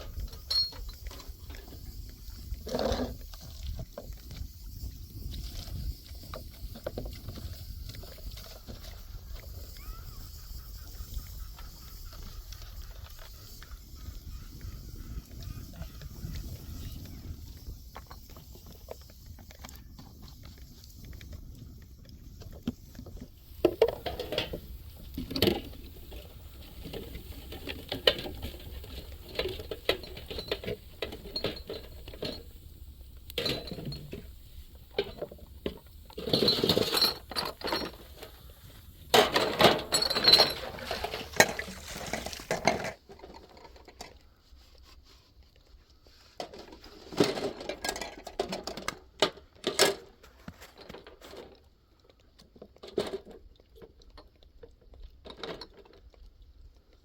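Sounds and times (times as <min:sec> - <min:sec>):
objects clinking and clattering: 0:00.0 - 0:01.8, 0:23.6 - 0:32.6, 0:33.4 - 0:34.3, 0:34.9 - 0:38.4, 0:39.1 - 0:44.2.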